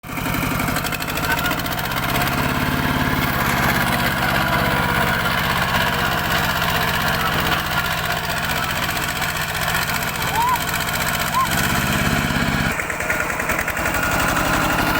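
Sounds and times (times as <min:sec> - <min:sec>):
diesel tractor engine idling: 0:00.0 - 0:14.9.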